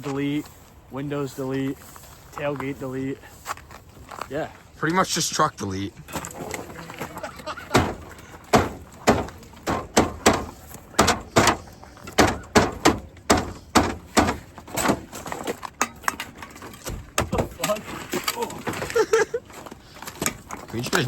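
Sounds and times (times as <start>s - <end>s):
metallic bangs on truck body: 7.7s - 15.2s.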